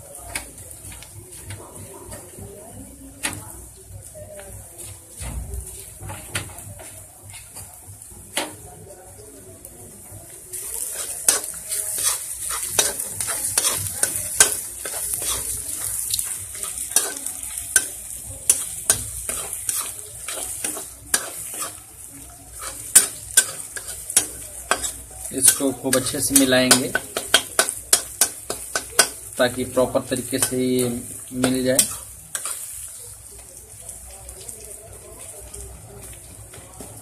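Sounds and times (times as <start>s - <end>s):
onions sizzling in oil: 0.0s - 37.0s
spatula scraping a pan: 10.6s - 32.9s.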